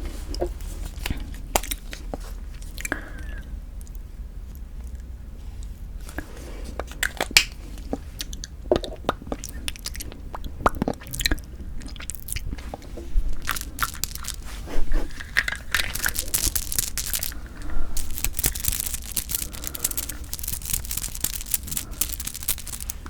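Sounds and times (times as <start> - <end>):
wet mouth clicks and crackles: 0.4 - 5.1, 5.7 - 23.0
biting and chewing: 5.7 - 23.0.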